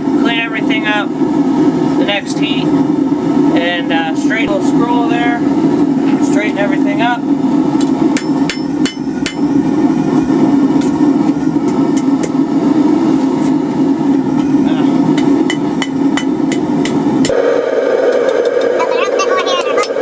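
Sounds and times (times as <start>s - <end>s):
steady low hum: 0.0s - 20.0s
hammer striking steel on anvil: 8.2s - 9.6s.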